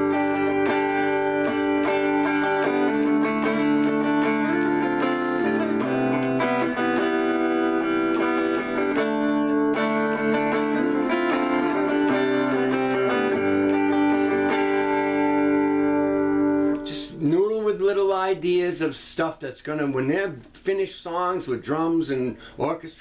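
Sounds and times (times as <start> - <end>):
clean electric guitar chords: 0.0 - 17.2.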